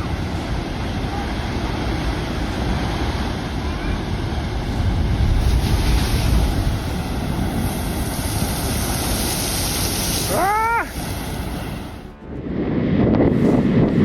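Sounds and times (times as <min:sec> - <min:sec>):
ocean surf breaking: 0:00.0 - 0:12.2
wind buffeting microphone: 0:00.0 - 0:14.0
high-pitched cry: 0:10.3 - 0:10.9.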